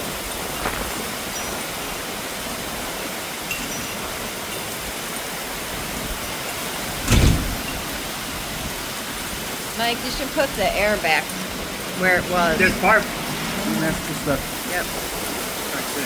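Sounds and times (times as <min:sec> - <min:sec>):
heavy rain pouring: 0:00.0 - 0:16.0
loud thump: 0:07.0 - 0:08.0.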